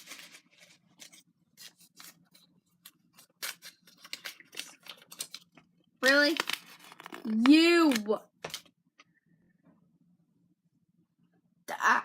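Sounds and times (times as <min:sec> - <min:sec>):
paper slips rustling: 0:03.2 - 0:08.7.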